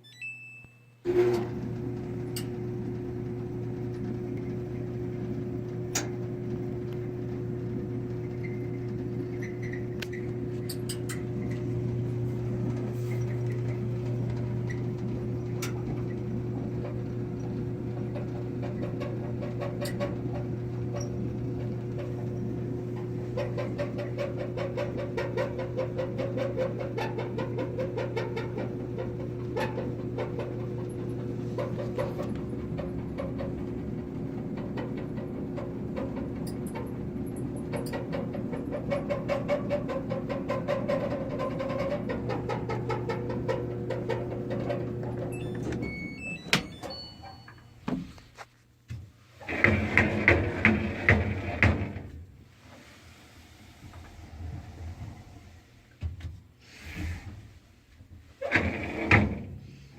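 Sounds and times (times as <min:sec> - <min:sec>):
clothes dryer humming: 0:01.0 - 0:59.9
rapid squeaks: 0:08.2 - 0:11.7.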